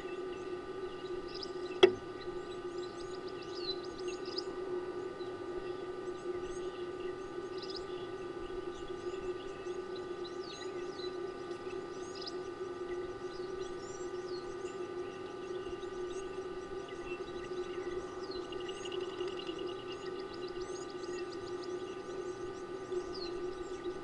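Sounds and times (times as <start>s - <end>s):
birds chirping: 0.0s - 24.0s
steady low hum: 0.0s - 24.0s.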